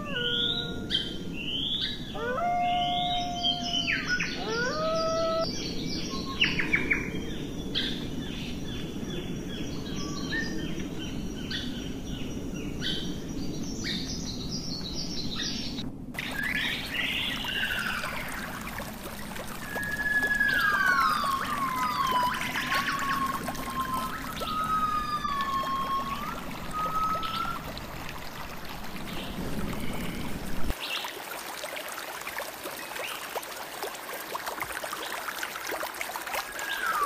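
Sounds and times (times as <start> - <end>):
birds chirping: 0.0 - 7.8, 8.4 - 30.7
whistled calls sliding down: 16.2 - 27.9.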